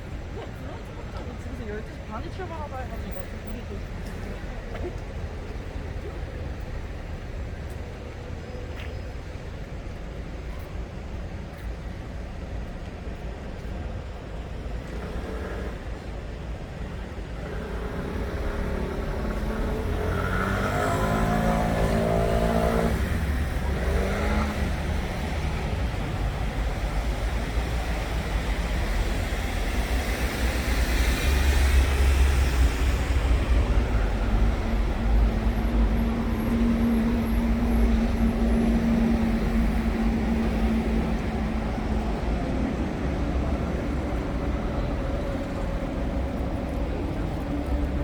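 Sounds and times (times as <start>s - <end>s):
steady engine hum: 0.0s - 48.0s
traffic engine rumble: 0.0s - 48.0s
heavy vehicle engine: 12.5s - 48.0s.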